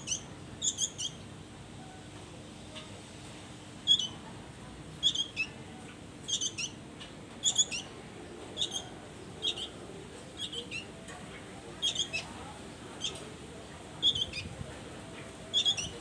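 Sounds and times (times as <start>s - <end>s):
songbird chirping: 8.6s - 9.8s, 10.4s - 13.2s, 14.0s - 14.5s, 15.2s - 16.0s.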